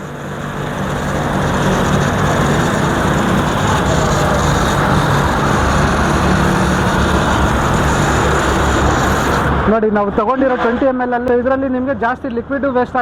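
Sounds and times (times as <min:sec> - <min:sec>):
pressure washer motor humming: 0:00.0 - 0:09.7
water jet hissing: 0:00.0 - 0:09.7.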